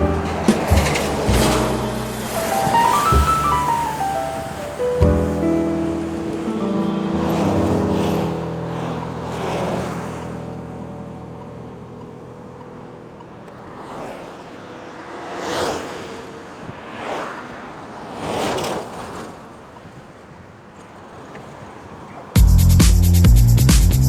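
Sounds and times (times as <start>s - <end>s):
loud music: 0.0s - 8.0s, 22.4s - 24.0s
outdoor background noise: 0.0s - 24.0s
vehicles passing: 0.0s - 24.0s.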